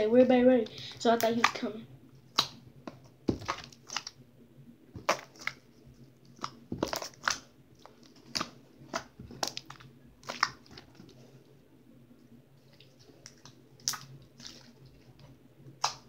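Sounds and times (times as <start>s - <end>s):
slime popping and crackling: 1.0s - 4.2s, 4.9s - 5.7s, 6.3s - 11.2s, 12.8s - 15.1s, 15.8s - 16.0s.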